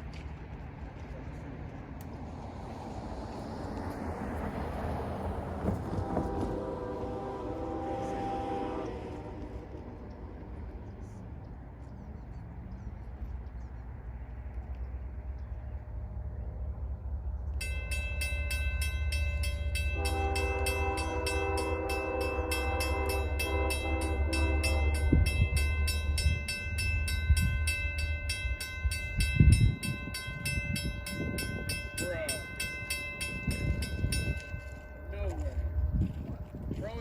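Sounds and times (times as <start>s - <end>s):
diesel locomotive engine rumbling: 0.0s - 37.0s
locomotive horn blast: 5.6s - 10.4s, 19.5s - 26.2s
crossing bell ringing: 17.5s - 37.0s.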